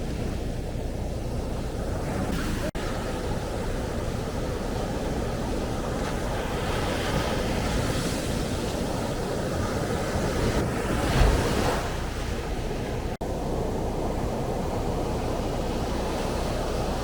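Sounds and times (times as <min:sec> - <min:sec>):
wind buffeting microphone: 0:00.0 - 0:17.0
surf breaking on sand beach: 0:01.8 - 0:12.4.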